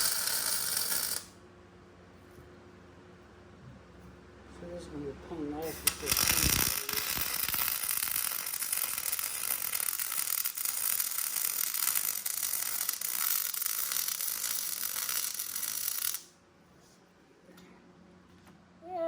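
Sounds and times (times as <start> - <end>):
electric welding arc crackling: 0.0 - 1.3, 5.6 - 16.3.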